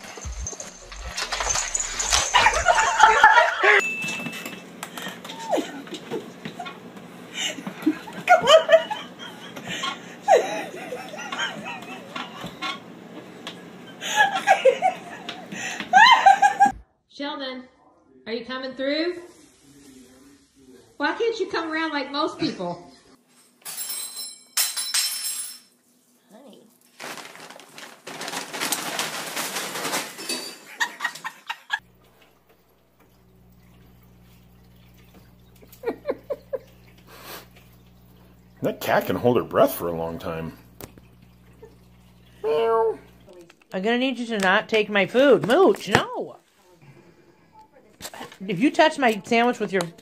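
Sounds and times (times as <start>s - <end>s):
paper bag crinkling: 0.0s - 3.4s, 26.8s - 30.7s
woman laughing: 2.2s - 3.8s, 5.0s - 12.7s, 14.0s - 16.8s, 30.7s - 31.8s, 35.6s - 36.9s.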